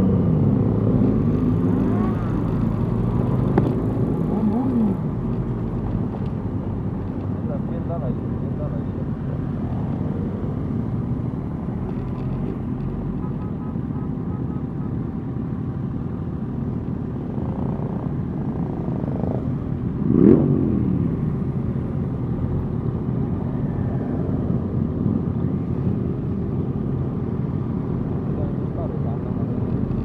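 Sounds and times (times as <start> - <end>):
motorcycle engine revving: 0.0 - 8.2, 17.2 - 24.8
motorcycle engines running: 0.0 - 30.0.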